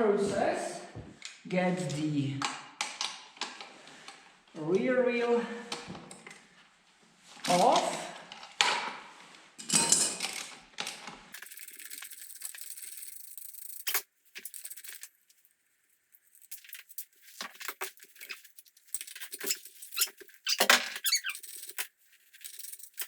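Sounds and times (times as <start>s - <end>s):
metal squeaking and scraping: 16.5s - 23.0s.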